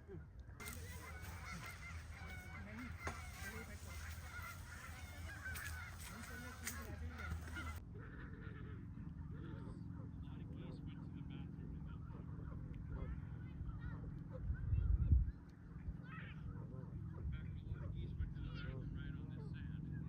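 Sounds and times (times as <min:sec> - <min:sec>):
geese honking: 0:00.6 - 0:08.6.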